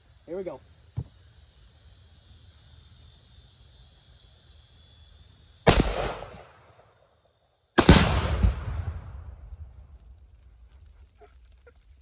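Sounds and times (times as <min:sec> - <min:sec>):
rifle shot: 0:05.6 - 0:06.6, 0:07.8 - 0:09.4
explosion with deep rumble: 0:07.8 - 0:09.9.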